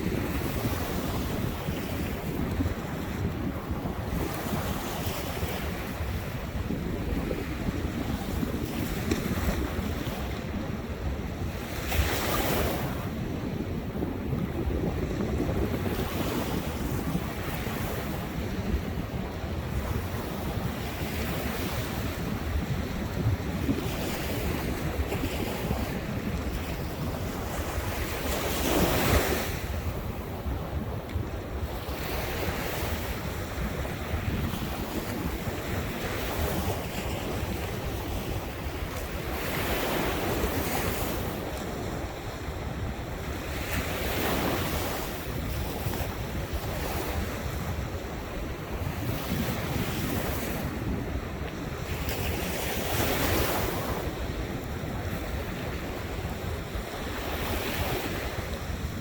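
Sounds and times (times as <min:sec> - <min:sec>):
wind rumbling on microphone: 0:00.0 - 0:59.0
ocean surf breaking: 0:13.8 - 0:59.0.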